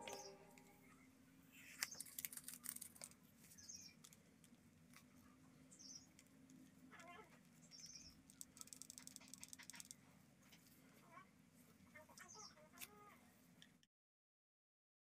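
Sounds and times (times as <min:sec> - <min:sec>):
faint high chirps: 0:00.0 - 0:02.1.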